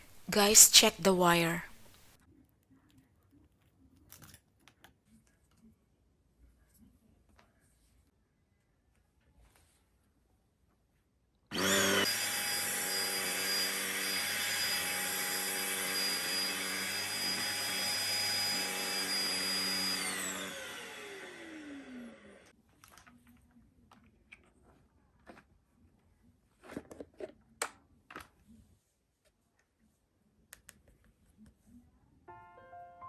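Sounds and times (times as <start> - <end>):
vacuum cleaner motor whine: 11.5 - 22.5.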